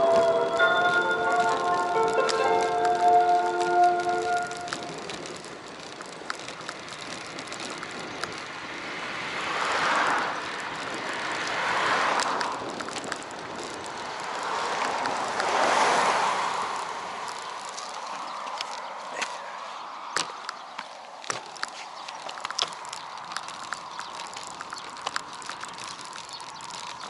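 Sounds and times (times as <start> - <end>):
wind and road noise: 0.0 - 27.0.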